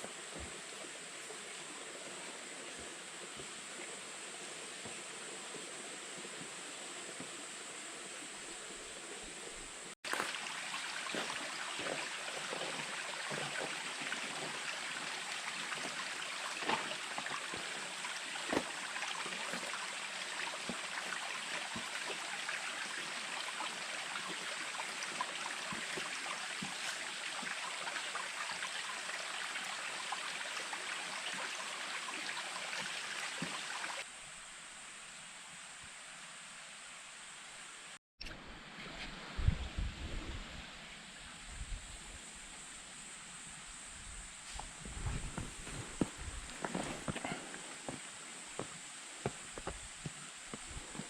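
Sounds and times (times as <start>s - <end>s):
stream water rushing: 10.0s - 34.1s.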